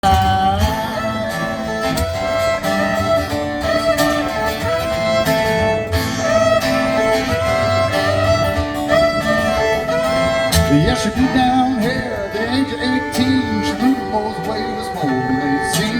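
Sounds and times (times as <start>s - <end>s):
fiddle holding long notes: 0.0s - 15.9s
strummed guitar chords: 0.0s - 15.9s.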